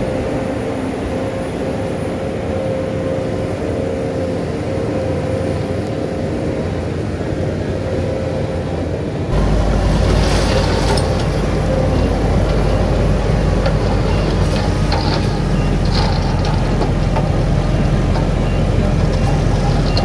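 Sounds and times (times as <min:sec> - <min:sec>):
heavy diesel machinery running: 0:09.3 - 0:20.0.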